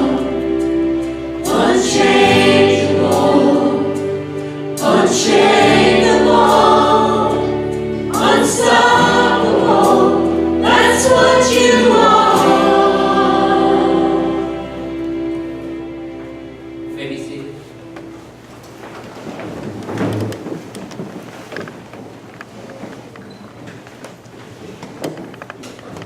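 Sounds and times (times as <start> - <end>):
choir singing a hymn: 0.0 - 17.0
instrumental accompaniment: 0.0 - 21.2.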